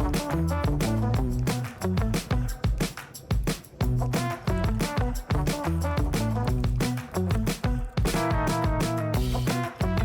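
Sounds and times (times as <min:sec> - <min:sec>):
funk music with drums bass guitar: 0:00.0 - 0:10.0.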